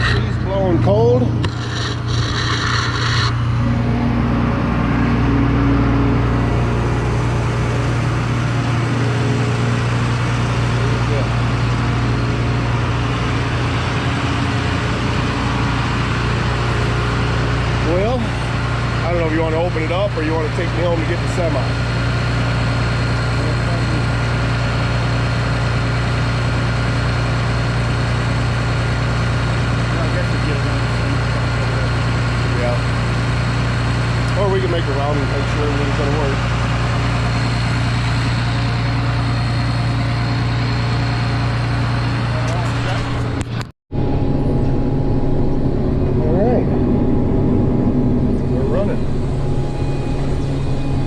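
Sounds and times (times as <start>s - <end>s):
diesel engine droning: 0.0s - 51.0s.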